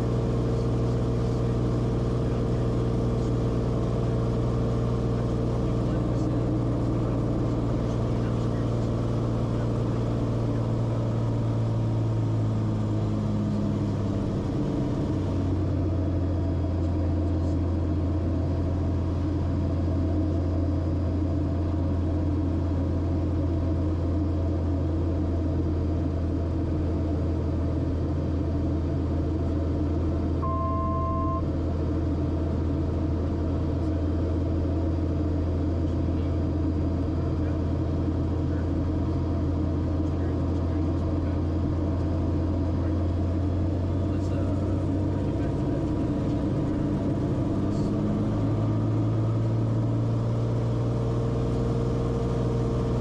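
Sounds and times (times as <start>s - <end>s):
aircraft engine and propeller drone: 0.0s - 53.0s
two-tone electronic beep: 30.4s - 31.5s.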